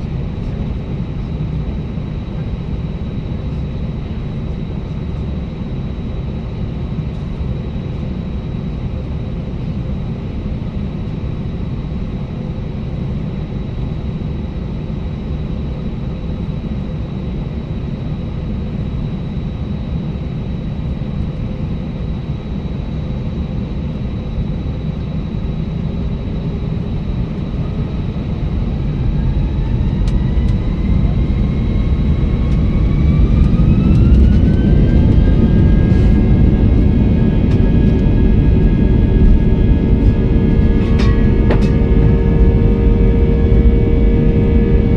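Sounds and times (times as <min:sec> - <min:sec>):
jet engines rumbling in cabin: 0:00.0 - 0:44.9
engine whine rising: 0:23.9 - 0:44.9.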